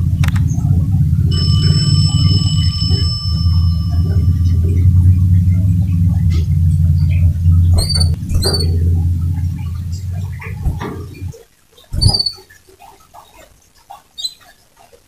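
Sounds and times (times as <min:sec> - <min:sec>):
loud low rumble: 0:00.0 - 0:11.3
canary chirps: 0:00.4 - 0:15.0
steady high tone: 0:00.7 - 0:11.3.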